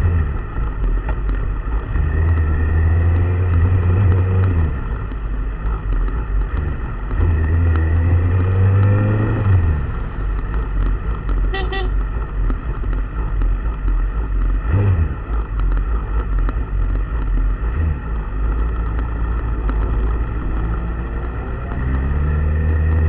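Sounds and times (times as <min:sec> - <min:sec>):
vehicle engine running: 0:00.0 - 0:23.0
car horn toot: 0:11.5 - 0:12.0.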